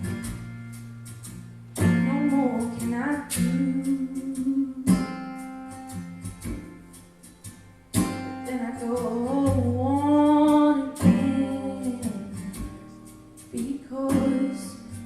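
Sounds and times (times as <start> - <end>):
guitar strumming slow chords: 0.0 - 15.0
woman singing: 1.8 - 5.2, 8.4 - 15.0.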